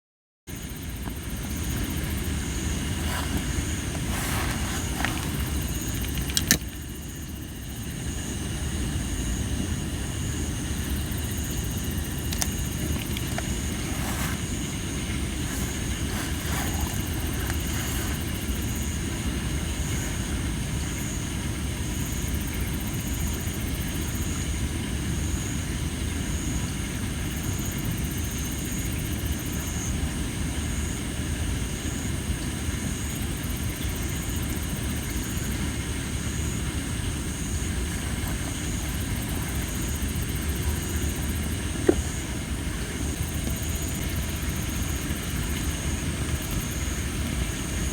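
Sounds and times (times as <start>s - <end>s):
insects trilling: 0.5s - 47.9s
campfire burning: 1.2s - 7.0s, 9.7s - 20.8s
wood crackling: 2.4s - 6.6s, 12.0s - 18.7s.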